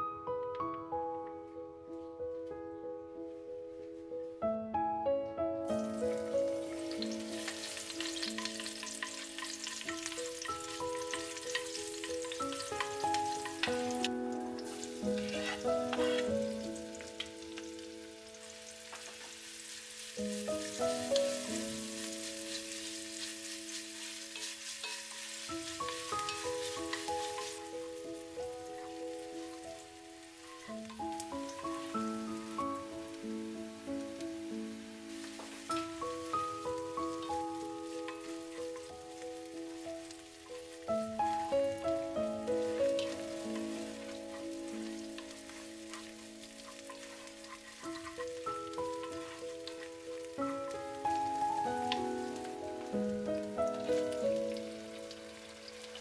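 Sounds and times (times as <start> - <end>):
background music with held notes: 0.0 - 56.0
garlic and onion sizzling in oil: 5.7 - 56.0
wooden spoon stirring: 14.6 - 16.6, 42.6 - 50.2.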